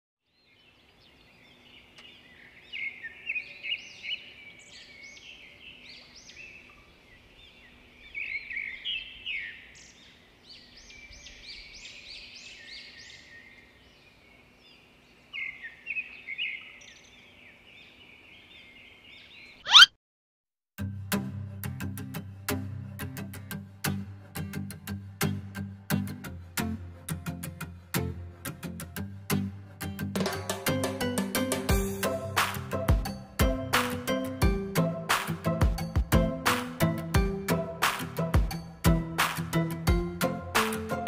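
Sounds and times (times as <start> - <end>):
birds chirping: 0.3 - 20.0.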